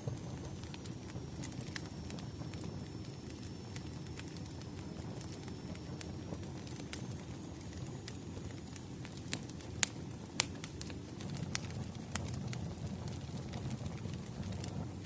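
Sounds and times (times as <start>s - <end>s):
wood fire crackling: 0.0s - 15.0s
sharp pops of burning logs: 0.2s - 14.8s.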